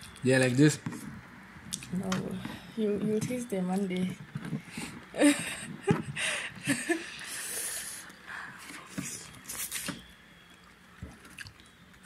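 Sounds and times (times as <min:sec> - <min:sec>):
chewing and lip smacks: 0:10.5 - 0:11.8.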